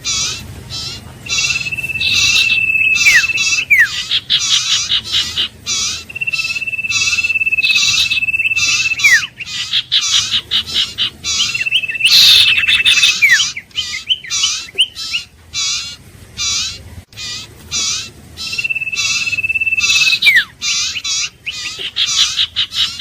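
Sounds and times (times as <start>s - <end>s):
bird harsh buzzy notes: 0.0s - 23.0s
bird long level whistle: 1.3s - 10.1s, 11.3s - 15.2s, 18.4s - 21.0s.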